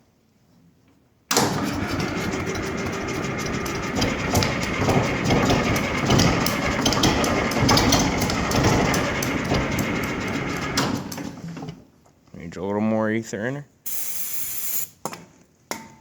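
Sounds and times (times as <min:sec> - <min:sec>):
tractor engine clattery run: 0:01.3 - 0:11.5.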